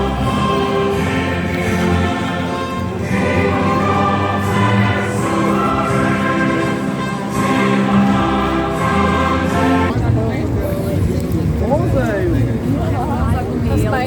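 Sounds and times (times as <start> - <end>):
choir singing long notes: 0.0 - 9.9
instrumental accompaniment: 0.0 - 10.1.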